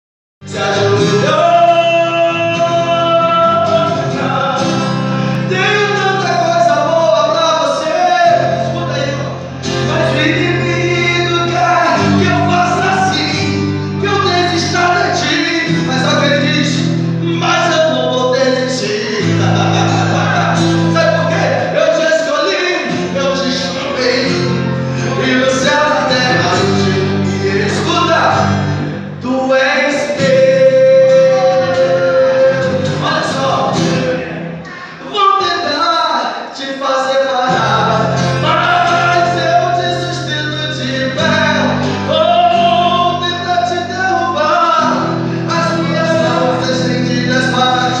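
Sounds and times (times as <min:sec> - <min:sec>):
voices singing gospel song: 0:00.4 - 0:16.5, 0:17.3 - 0:48.0
sustained bass chords: 0:24.4 - 0:29.3
band accompaniment: 0:25.1 - 0:29.0.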